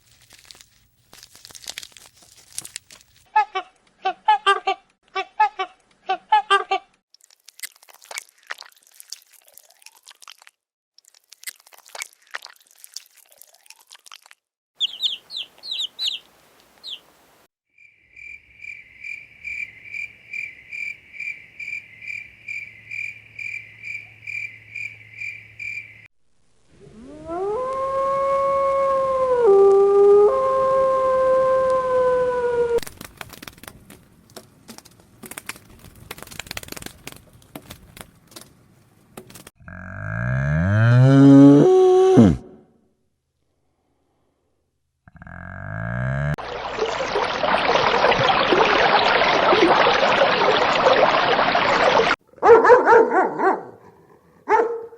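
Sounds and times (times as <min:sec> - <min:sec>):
crunchy clicking: 0:32.8 - 0:39.5
long animal call dipping in pitch: 0:40.9 - 0:42.6.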